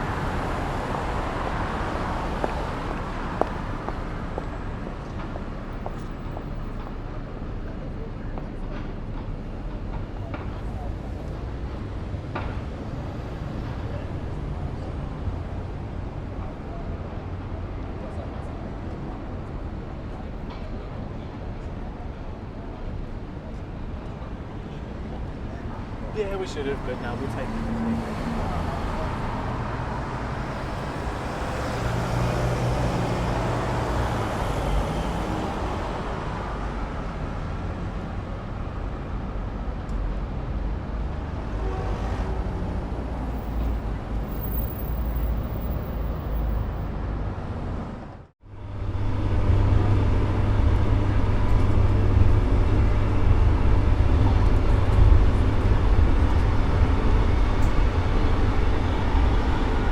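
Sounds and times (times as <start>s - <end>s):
road traffic rumble: 0.0s - 59.9s
deep engine rumble: 46.9s - 59.9s.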